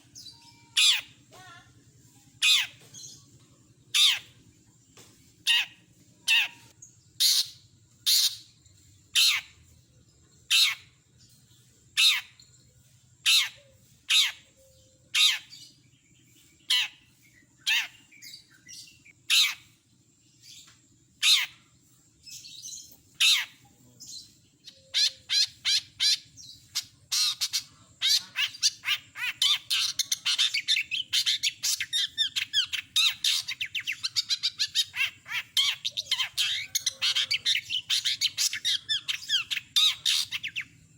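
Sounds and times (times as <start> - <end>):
bird chattering song: 0.0 - 40.9
bird harsh squawks: 0.6 - 1.6, 4.0 - 4.3, 5.5 - 8.4, 9.2 - 9.5, 24.8 - 40.6.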